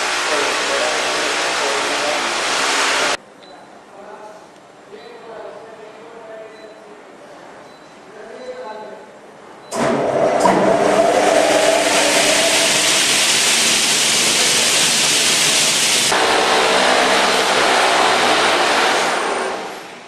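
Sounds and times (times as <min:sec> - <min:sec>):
saw cutting hiss: 0:00.0 - 0:03.2, 0:10.5 - 0:19.8
saw blade motors whining: 0:09.8 - 0:19.8.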